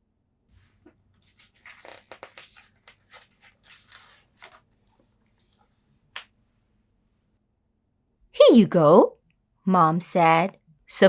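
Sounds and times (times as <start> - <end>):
paper rustling and crinkling: 0.6 - 6.4.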